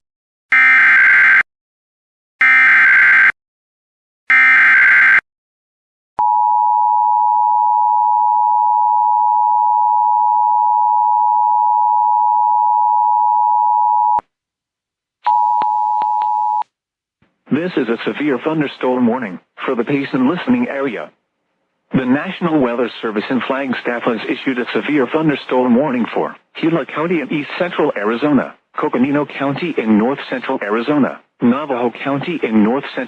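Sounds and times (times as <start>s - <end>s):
clicks: 15.6s - 17.4s.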